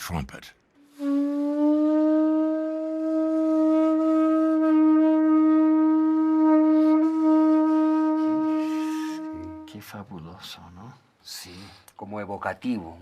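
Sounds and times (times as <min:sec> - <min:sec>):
conch shell trumpet note: 0:00.8 - 0:09.9.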